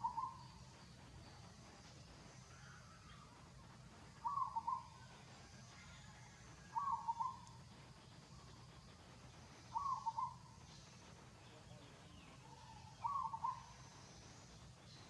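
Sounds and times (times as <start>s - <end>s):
bird calling: 0.0s - 1.0s, 4.2s - 5.1s, 6.7s - 7.6s, 9.6s - 14.2s
faint low hum: 0.0s - 15.0s.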